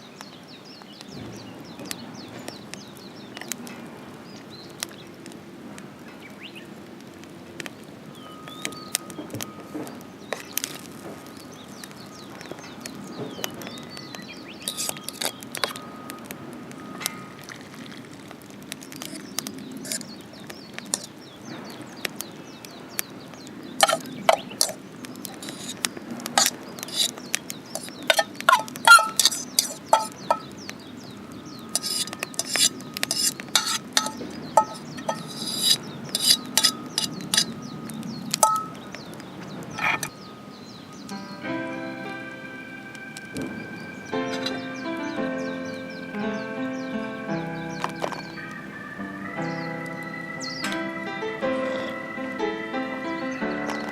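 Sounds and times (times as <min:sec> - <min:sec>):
metal cookware clinking and scraping: 0:14.7 - 0:15.8, 0:19.8 - 0:20.0, 0:23.8 - 0:24.8, 0:25.4 - 0:25.8, 0:26.4 - 0:27.2, 0:27.8 - 0:30.5, 0:31.8 - 0:37.6, 0:38.4 - 0:38.8, 0:39.8 - 0:40.1, 0:44.3 - 0:44.7.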